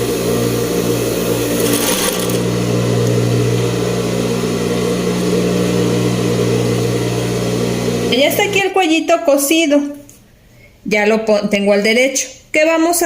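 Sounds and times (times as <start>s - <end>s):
electric sewing machine running: 0.0s - 8.5s.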